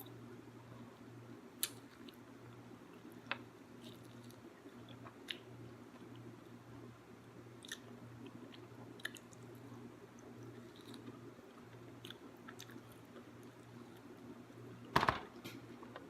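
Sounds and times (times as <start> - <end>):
low steady hum: 0.0 - 16.0
close-up chewing: 7.6 - 14.1.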